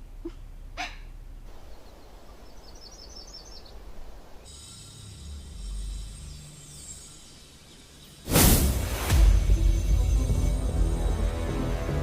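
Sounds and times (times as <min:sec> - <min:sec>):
small bird chirping: 0:00.8 - 0:08.3.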